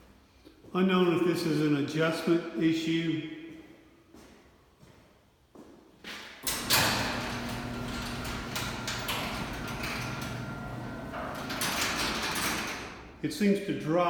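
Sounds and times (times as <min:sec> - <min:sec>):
man talking: 0:00.7 - 0:03.4, 0:13.2 - 0:14.0
faint whine of moving door: 0:06.4 - 0:13.1
garage door opener motor hum: 0:06.4 - 0:13.2.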